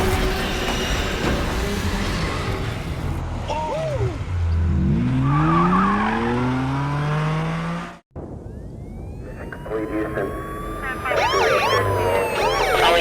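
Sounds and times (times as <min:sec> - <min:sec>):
car engine accelerating: 0:01.9 - 0:08.0.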